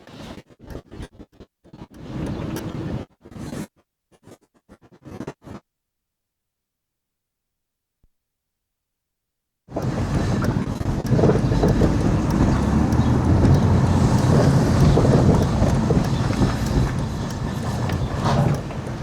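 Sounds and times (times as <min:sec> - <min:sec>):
car engine and road noise: 0:09.7 - 0:19.0.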